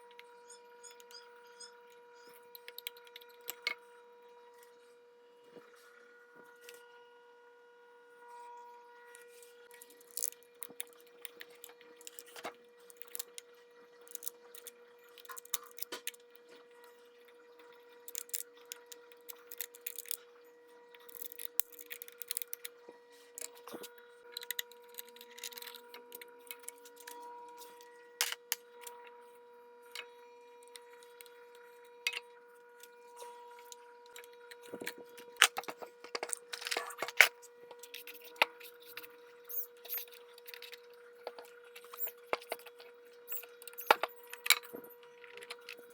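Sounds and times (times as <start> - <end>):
metal parts and tools clinking: 34.7 - 45.8.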